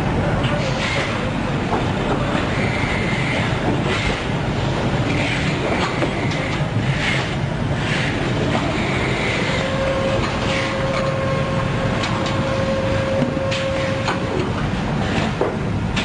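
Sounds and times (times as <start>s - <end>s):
steady whine: 0.0s - 15.4s
machine mechanical clatter: 5.0s - 11.3s, 11.9s - 16.0s.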